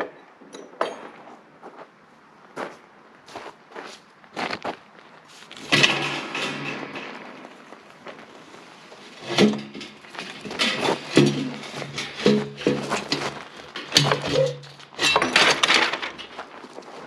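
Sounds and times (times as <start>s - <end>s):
metal exhaust parts clanking: 5.5s - 16.6s.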